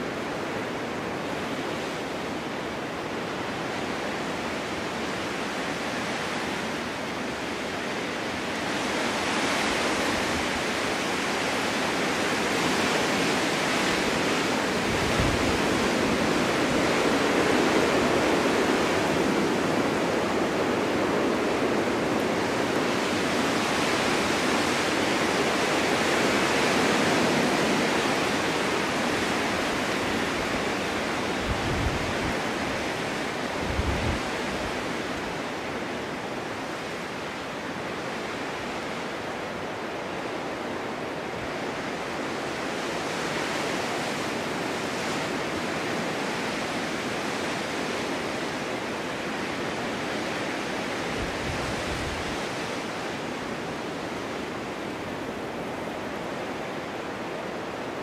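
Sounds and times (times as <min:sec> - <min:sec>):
storm wind blowing: 0:00.0 - 0:58.0.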